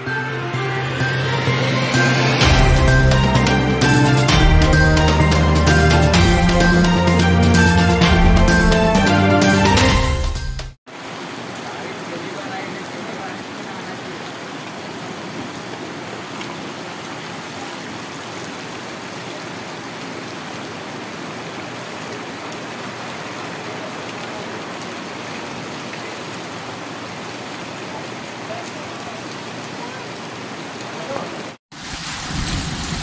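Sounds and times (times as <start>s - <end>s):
heavy rain pouring on street: 10.9s - 33.0s.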